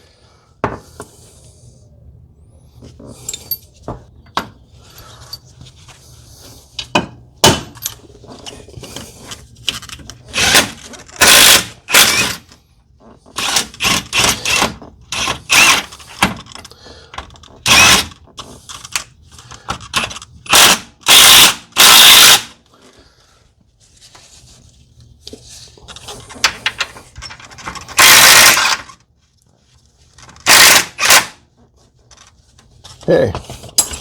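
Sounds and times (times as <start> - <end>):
metal tools clattering: 33.4 - 34.0.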